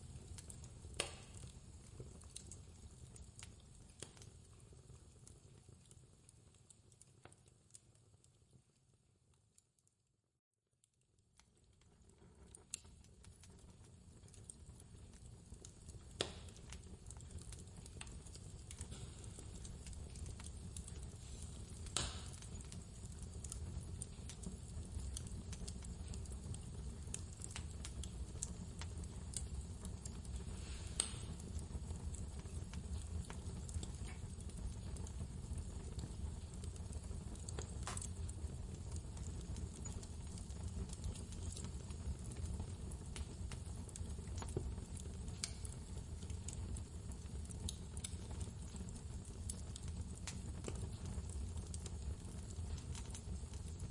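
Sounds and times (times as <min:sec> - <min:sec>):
fireplace crackling and popping: 0:00.0 - 0:10.0, 0:10.8 - 0:53.9.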